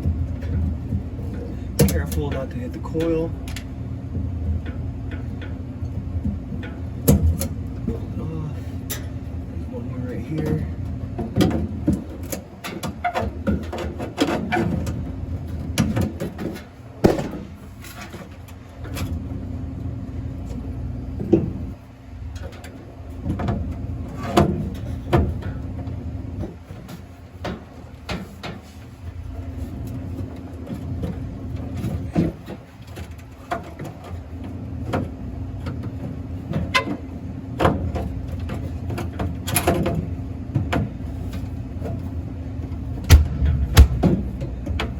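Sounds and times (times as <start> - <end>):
low machine hum: 0.0 - 12.4, 14.7 - 26.4, 41.0 - 44.9.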